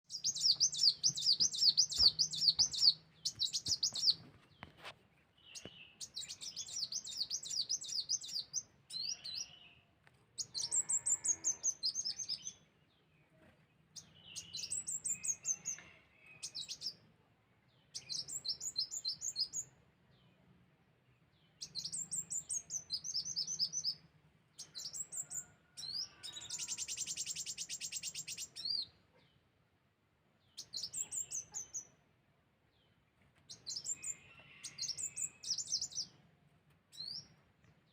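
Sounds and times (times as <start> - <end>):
sunbird chirping: 0.0 - 4.7.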